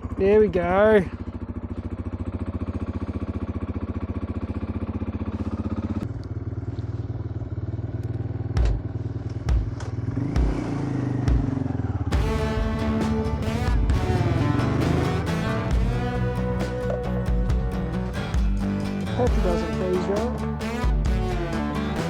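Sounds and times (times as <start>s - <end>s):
motorcycle engine idling: 0.0s - 22.0s
dull thumps: 8.6s - 10.6s.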